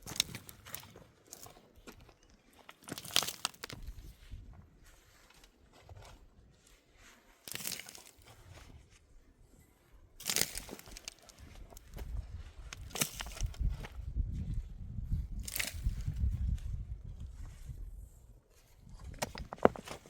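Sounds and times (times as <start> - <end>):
crunching and rustling: 0.0 - 9.1, 10.1 - 14.1, 15.3 - 17.4.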